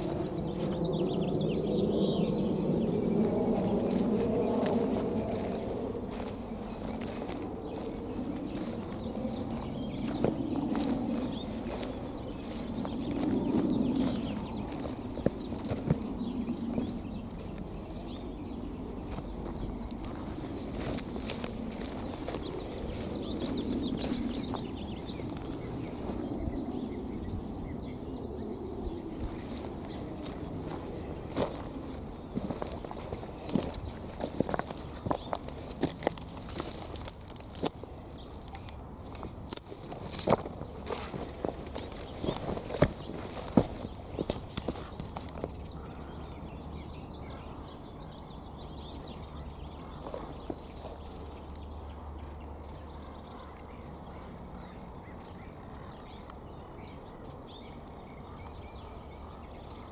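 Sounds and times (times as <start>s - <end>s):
footsteps on ground: 0.0s - 1.0s, 2.7s - 26.4s, 29.2s - 45.9s, 49.8s - 51.6s
low outdoor rumble: 0.0s - 59.9s
small birds chirping: 0.0s - 59.9s.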